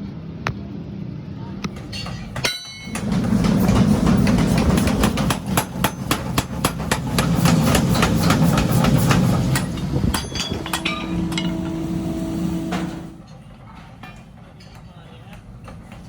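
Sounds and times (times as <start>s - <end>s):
low machine rumble: 1.4s - 13.2s
hammer striking steel: 1.7s - 13.2s.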